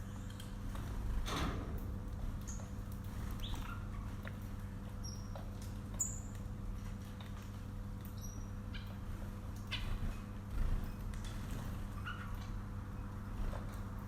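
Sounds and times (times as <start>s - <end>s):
low electrical hum: 0.0s - 14.0s
birds chirping: 2.4s - 6.5s, 8.0s - 13.9s.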